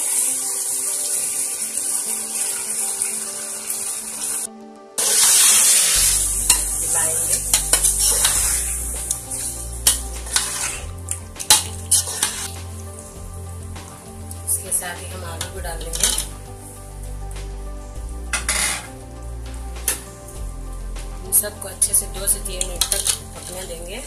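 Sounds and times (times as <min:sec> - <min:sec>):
meat sizzling in oil: 0:00.0 - 0:14.9
spatula scraping a metal pot: 0:05.0 - 0:12.6, 0:18.3 - 0:18.9.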